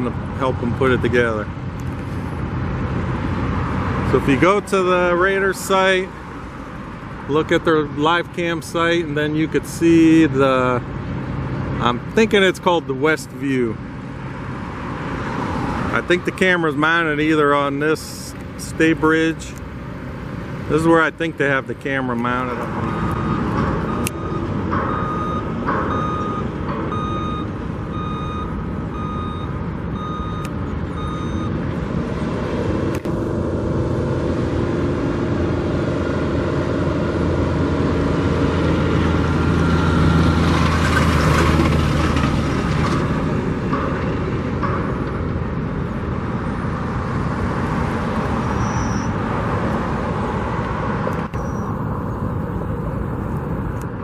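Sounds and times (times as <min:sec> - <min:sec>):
heavy vehicle engine passing: 0:00.0 - 0:54.0
traffic noise: 0:00.0 - 0:54.0
reversing alarm beeping: 0:22.8 - 0:31.6, 0:39.6 - 0:40.4, 0:48.4 - 0:49.2, 0:51.3 - 0:53.2.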